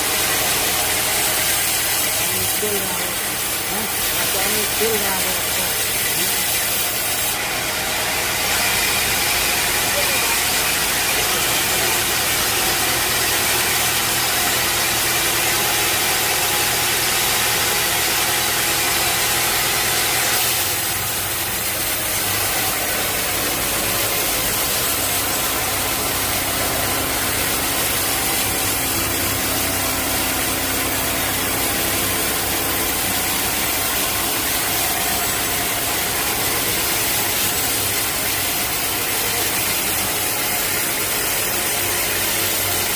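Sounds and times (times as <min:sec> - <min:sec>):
sawmill machinery running: 0:00.0 - 0:42.9.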